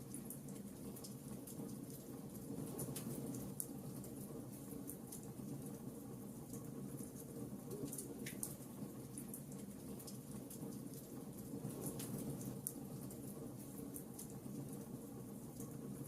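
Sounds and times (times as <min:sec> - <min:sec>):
wood fire crackling: 0:06.4 - 0:15.9.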